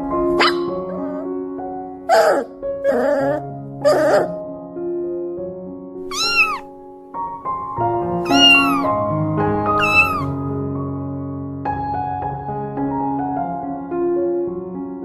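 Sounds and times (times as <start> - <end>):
soft piano music: 0.0 - 15.0
meow-like animal cries: 2.1 - 4.3, 6.1 - 6.7, 8.3 - 8.9, 9.8 - 10.3.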